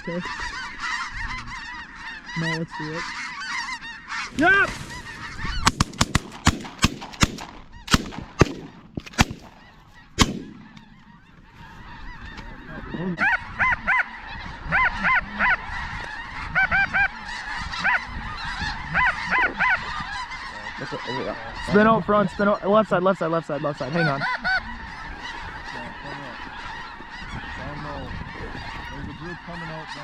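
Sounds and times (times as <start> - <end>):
geese honking: 0.0 - 30.0
shotgun blasts: 5.6 - 9.6, 10.2 - 10.8.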